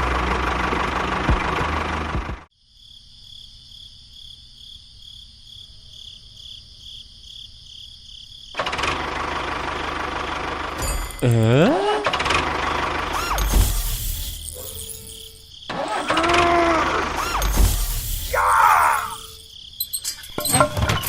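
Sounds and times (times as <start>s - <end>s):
small engine running loud: 0.0s - 2.5s, 8.6s - 13.8s, 15.7s - 17.6s.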